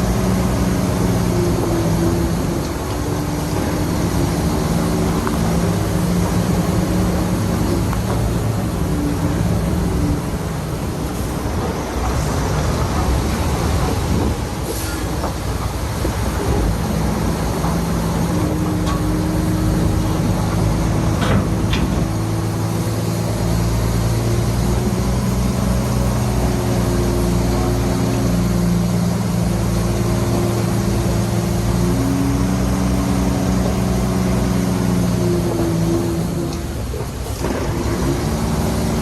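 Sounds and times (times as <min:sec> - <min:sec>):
heavy diesel engine running: 0:00.0 - 0:39.0.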